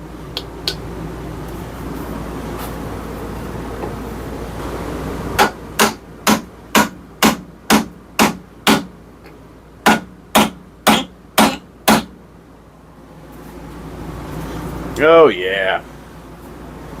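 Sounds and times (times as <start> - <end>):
hammer striking wooden wedge: 5.4 - 8.9, 9.8 - 12.1.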